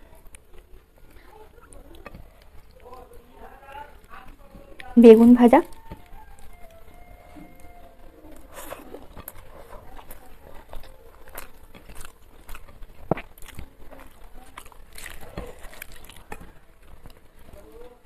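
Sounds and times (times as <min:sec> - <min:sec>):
chewing rice: 0:00.0 - 0:18.0
fingers mixing rice on plate: 0:05.7 - 0:18.0.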